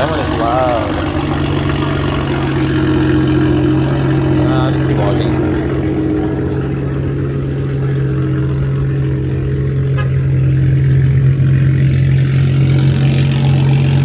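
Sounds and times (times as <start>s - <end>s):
loud car exhaust idling: 0.0s - 14.0s.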